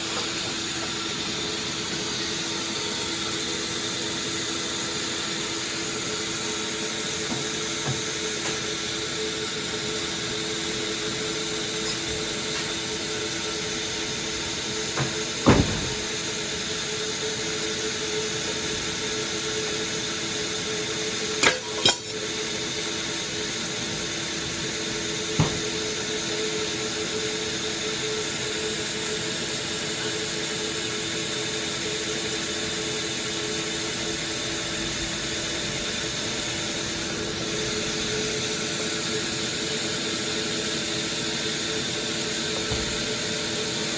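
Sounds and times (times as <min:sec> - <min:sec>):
sawmill machinery humming: 0:00.0 - 0:43.9.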